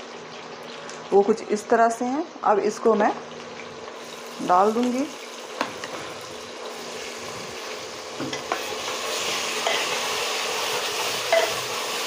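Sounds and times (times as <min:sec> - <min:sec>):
onions sizzling in oil: 0:00.0 - 0:12.0
metal spoon clinking: 0:09.6 - 0:09.9, 0:11.3 - 0:11.6.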